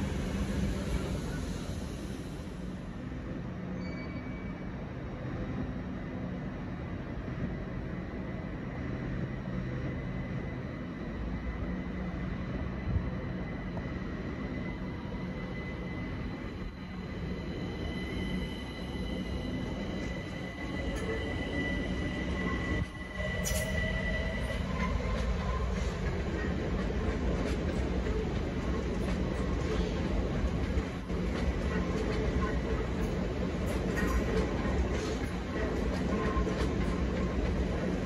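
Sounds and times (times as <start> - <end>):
rumble of rolling train: 0.0 - 38.0
train wheels squealing: 3.6 - 4.9, 9.2 - 38.0.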